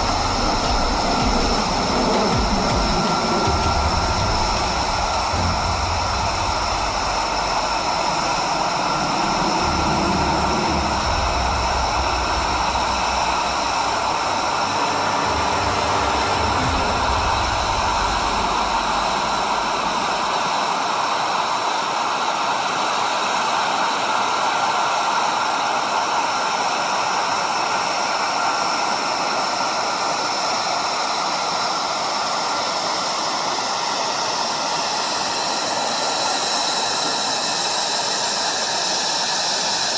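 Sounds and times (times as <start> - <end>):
low rumble: 0.0 - 21.2
jet engine whine and hiss: 0.0 - 39.9.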